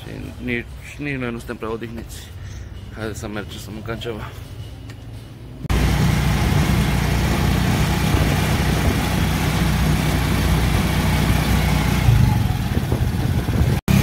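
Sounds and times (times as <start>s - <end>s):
motorcycle engine running: 5.7s - 14.0s.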